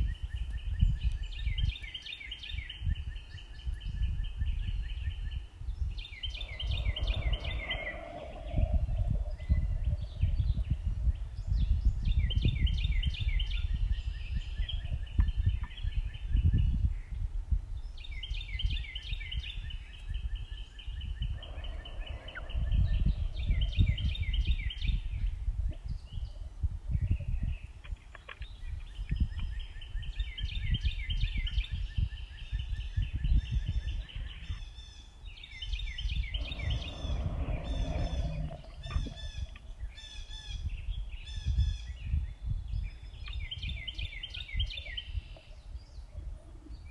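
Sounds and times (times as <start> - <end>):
songbirds chirping: 0.0 - 46.9
lower-pitched bird call: 6.1 - 10.6, 21.0 - 24.9, 33.6 - 42.0
steady low rumble: 36.0 - 42.4.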